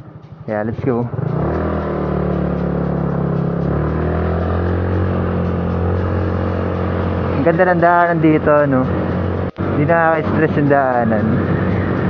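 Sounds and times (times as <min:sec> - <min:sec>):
scooter engine under throttle: 0:01.0 - 0:07.9.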